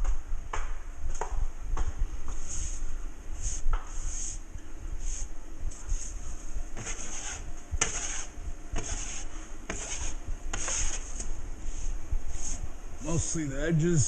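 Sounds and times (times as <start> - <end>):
hand tool rubbing drywall: 6.8 - 12.6.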